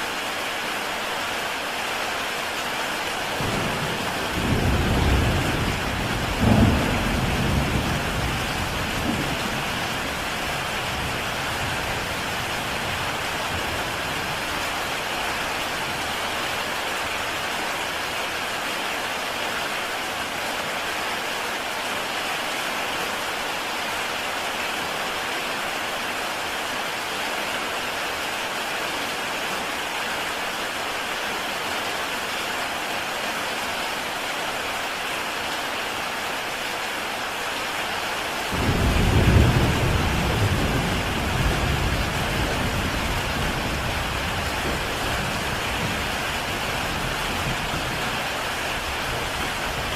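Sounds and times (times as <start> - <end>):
heavy rain on a tile roof: 0.0 - 49.9
thunder rumble: 3.5 - 13.9.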